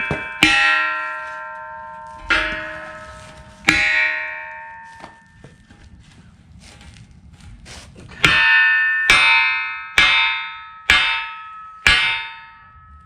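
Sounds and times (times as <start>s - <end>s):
hammer striking steel beam: 0.0s - 5.6s, 8.2s - 13.0s.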